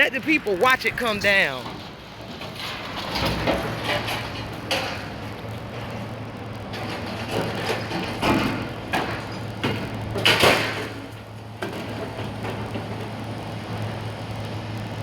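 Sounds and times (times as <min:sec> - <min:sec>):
heavy machine engine running: 0:00.0 - 0:15.0
concrete crashing and scraping: 0:01.3 - 0:05.9, 0:06.7 - 0:13.0.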